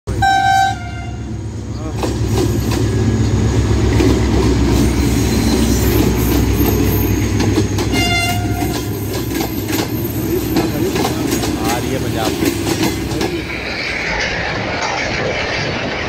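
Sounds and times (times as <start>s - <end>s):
train horn blast: 0.1s - 1.3s, 7.9s - 9.0s
locomotive engine running: 0.1s - 16.0s
train wheels clattering: 1.8s - 16.0s.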